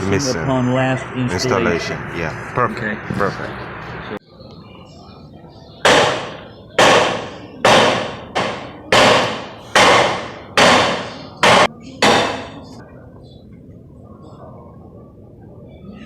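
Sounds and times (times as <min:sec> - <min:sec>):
hammer striking metal: 0:05.8 - 0:12.6.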